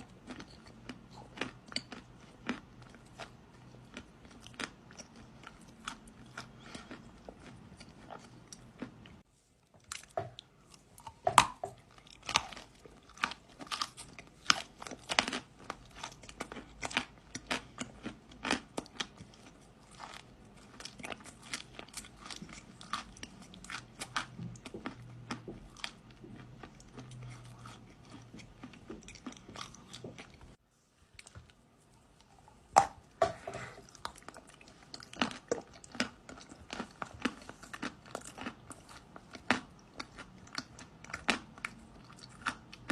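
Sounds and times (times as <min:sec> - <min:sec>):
biting and crunching clay chunks: 0:11.1 - 0:30.3.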